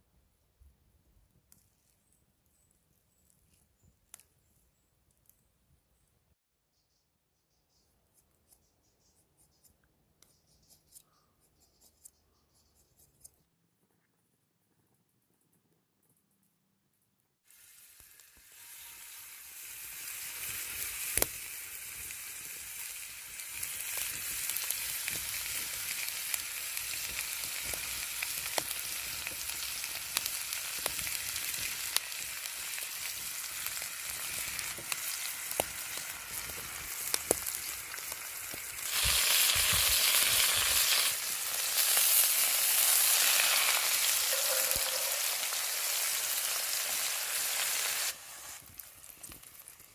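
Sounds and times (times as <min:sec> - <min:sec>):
steak sizzling in a pan: 0:17.5 - 0:49.9.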